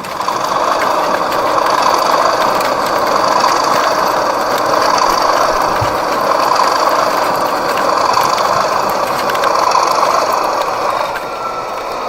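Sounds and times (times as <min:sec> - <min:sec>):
model train clattering on track: 0:00.0 - 0:12.0.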